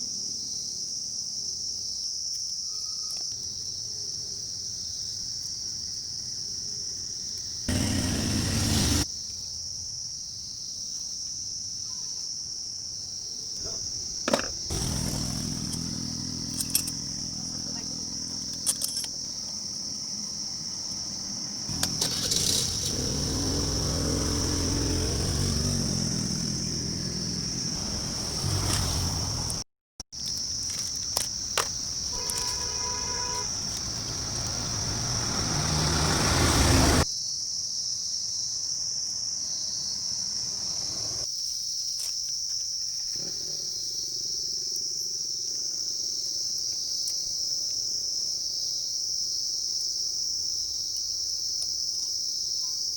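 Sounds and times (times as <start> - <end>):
crickets trilling: 0.0 - 29.6, 30.2 - 52.9
low vehicle rumble: 21.7 - 29.6, 31.8 - 37.0.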